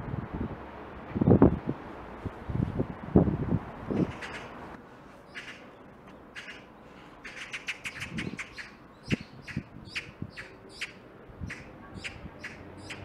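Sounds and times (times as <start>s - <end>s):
small birds chirping: 5.3s - 13.0s.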